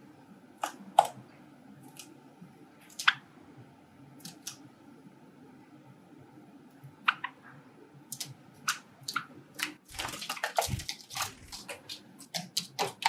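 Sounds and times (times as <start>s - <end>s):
wings fluttering: 9.8s - 12.1s.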